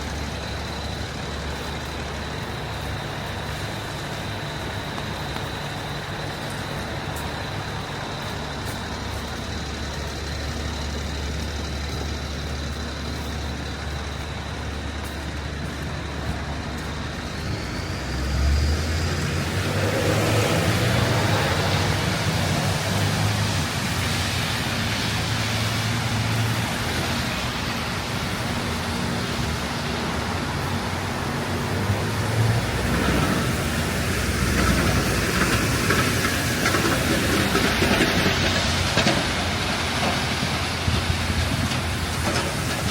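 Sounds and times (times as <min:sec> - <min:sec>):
heavy vehicle engine humming: 0:00.0 - 0:42.9
high engine whine: 0:00.0 - 0:42.9
street traffic: 0:00.0 - 0:42.9.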